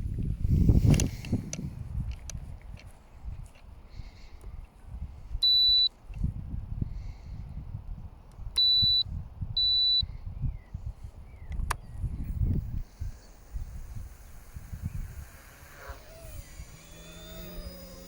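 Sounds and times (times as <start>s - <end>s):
wind rumbling on microphone: 0.0s - 18.0s
sharp click: 11.5s - 13.7s.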